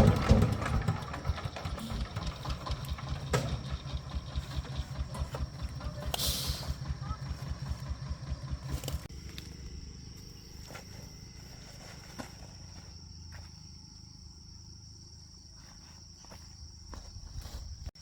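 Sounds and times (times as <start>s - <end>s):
high-pitched insect trill: 9.1s - 17.9s.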